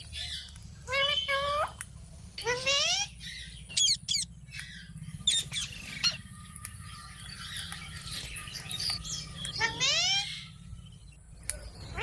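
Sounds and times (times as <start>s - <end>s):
parakeet squawking: 2.4s - 6.4s, 7.4s - 10.7s.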